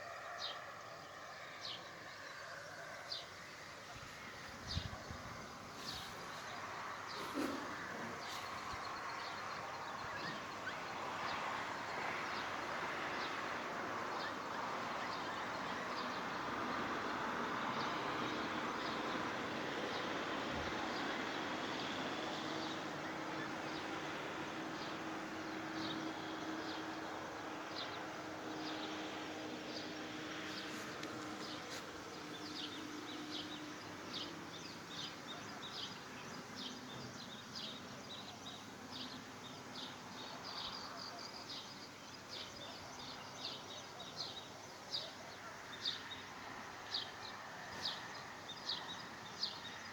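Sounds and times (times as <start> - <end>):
small birds chirping: 3.1 - 13.4.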